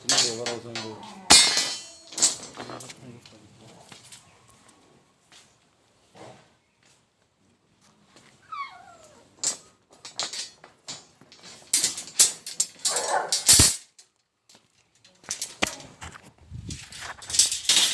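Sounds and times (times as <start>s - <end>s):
knocks and clatter: 0.0s - 3.3s, 9.4s - 17.9s
dog whining: 8.4s - 9.4s.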